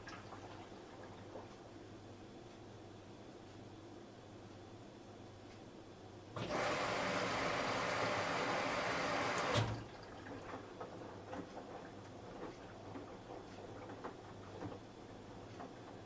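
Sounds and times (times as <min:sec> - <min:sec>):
water rushing into washing machine: 0:00.0 - 0:01.5, 0:06.4 - 0:14.8
washing machine thump: 0:09.2 - 0:09.9.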